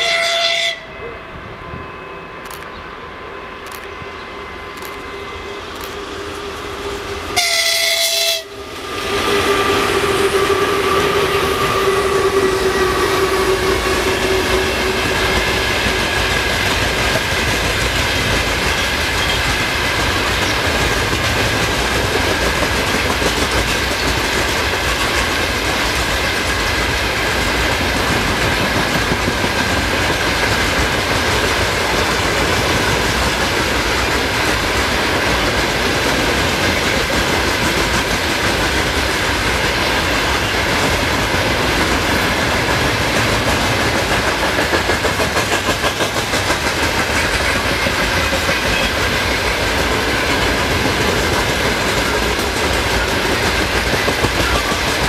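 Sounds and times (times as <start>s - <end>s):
locomotive horn blast: 0.0s - 2.4s, 7.3s - 15.6s
locomotive whine: 0.0s - 55.0s.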